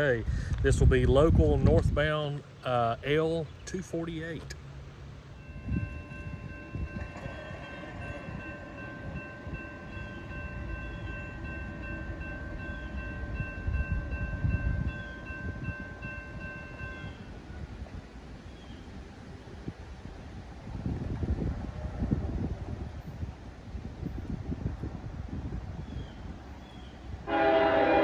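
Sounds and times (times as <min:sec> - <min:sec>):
freight train rumbling past: 0:02.9 - 0:28.0
high ringing tone: 0:05.4 - 0:17.2.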